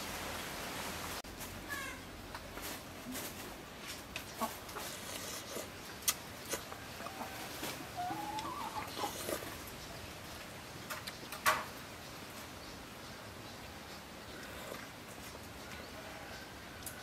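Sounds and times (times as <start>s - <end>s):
soft eating sounds: 2.3s - 11.4s, 14.0s - 17.0s
faint bird calls: 6.0s - 10.0s.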